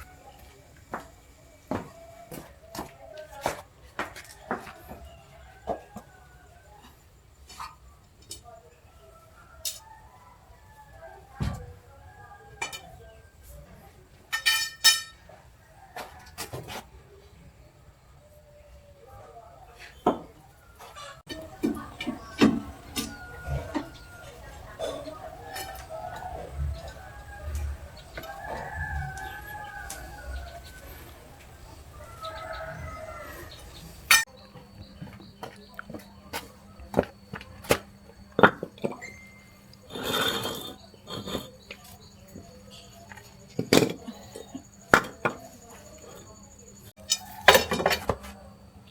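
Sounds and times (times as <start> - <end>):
metal objects clinking: 14.3 - 15.2.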